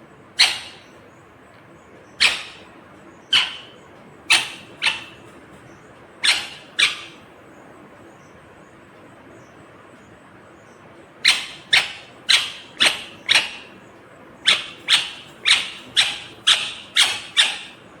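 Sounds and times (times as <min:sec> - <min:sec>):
parakeet harsh calls: 0:00.4 - 0:01.0, 0:02.1 - 0:05.4, 0:06.2 - 0:07.2, 0:11.2 - 0:13.8, 0:14.4 - 0:18.0.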